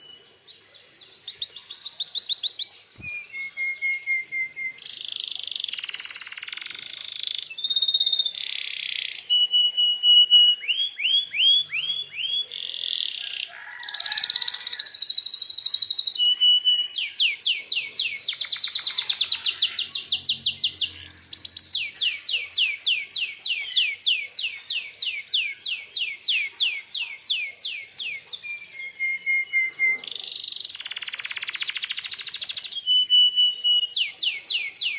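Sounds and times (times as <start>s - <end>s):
canary singing trills: 0.0s - 34.9s.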